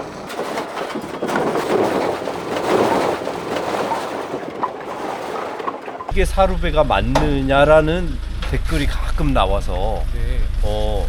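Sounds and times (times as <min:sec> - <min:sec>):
firewood tumbling and clattering: 0:00.0 - 0:06.2.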